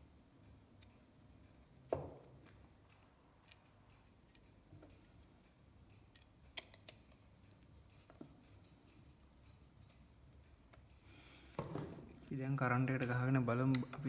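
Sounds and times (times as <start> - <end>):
small parts clicking: 2.4 - 5.3, 5.9 - 8.0.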